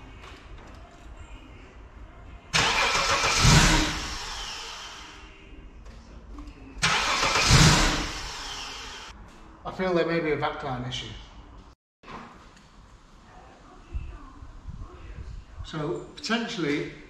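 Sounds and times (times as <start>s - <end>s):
car engine cranking: 2.6s - 5.1s, 6.8s - 9.1s.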